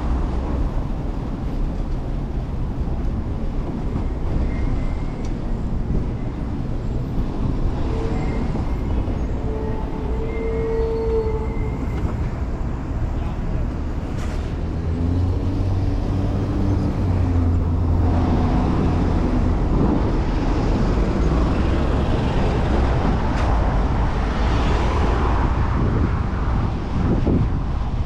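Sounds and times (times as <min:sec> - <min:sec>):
road noise: 0:00.0 - 0:28.0
wind rushing: 0:17.8 - 0:28.0.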